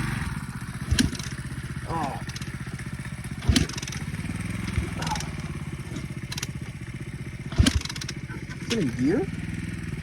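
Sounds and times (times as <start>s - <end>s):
small engine idling and revving: 0.0s - 10.0s.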